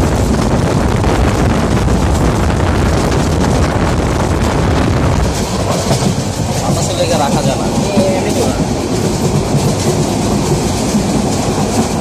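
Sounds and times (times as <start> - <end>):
train rumbling: 0.0 - 12.0
wind buffeting microphone: 0.0 - 12.0.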